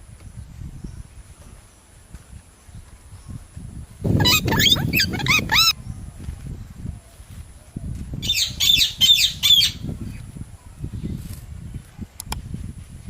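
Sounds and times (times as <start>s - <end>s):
parrots squawking: 4.1s - 5.7s, 8.2s - 9.8s.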